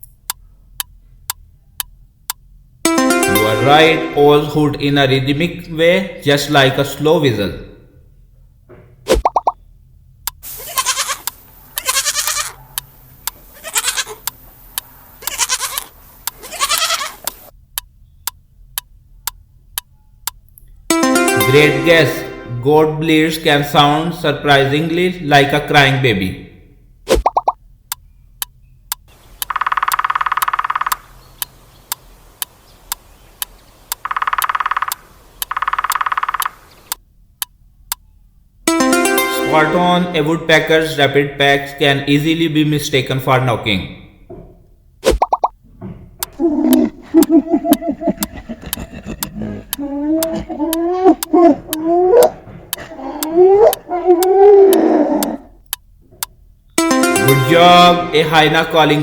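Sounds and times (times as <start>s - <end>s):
music: 2.9s - 4.8s, 20.9s - 23.0s, 38.7s - 40.3s, 56.8s - 59.0s
steady ticking: 10.2s - 22.6s, 27.2s - 38.0s, 38.7s - 39.9s, 46.2s - 59.0s
goat bleating: 10.6s - 12.6s, 13.5s - 14.2s, 15.2s - 17.3s, 48.1s - 53.8s
woodpecker drumming: 28.9s - 37.0s, 46.2s - 54.3s.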